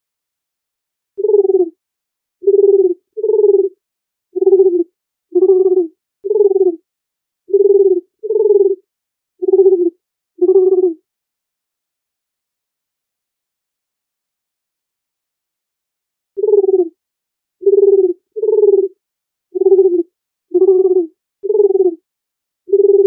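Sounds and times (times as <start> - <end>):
dove cooing: 1.2 - 1.8, 2.4 - 3.8, 4.4 - 6.8, 7.5 - 8.8, 9.4 - 11.0, 16.4 - 17.0, 17.6 - 19.0, 19.6 - 22.0, 22.7 - 23.0.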